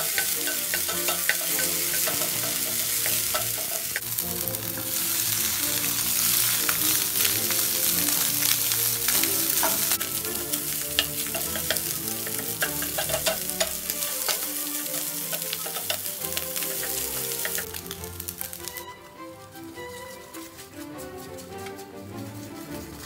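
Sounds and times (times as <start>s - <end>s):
spatula clicking against pan: 0.0s - 4.0s, 9.1s - 14.5s, 15.2s - 18.8s
food sizzling in a pan: 0.0s - 18.8s
wooden spatula scraping pan: 7.4s - 17.9s.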